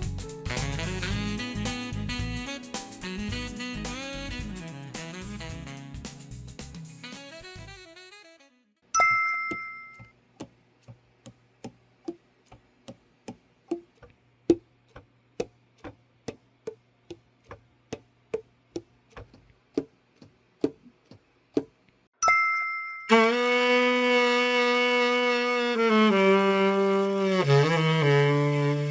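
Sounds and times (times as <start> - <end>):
bright ringing chime: 9.0 - 10.1, 22.2 - 23.2.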